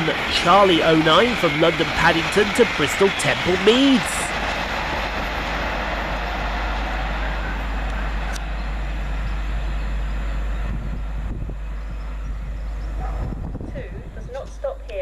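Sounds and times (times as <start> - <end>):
train passing at speed: 0.0 - 14.8.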